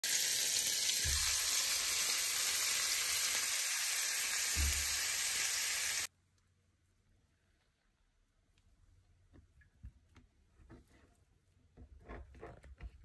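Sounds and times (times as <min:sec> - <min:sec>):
meat sizzling in a frying pan: 0:00.0 - 0:06.1.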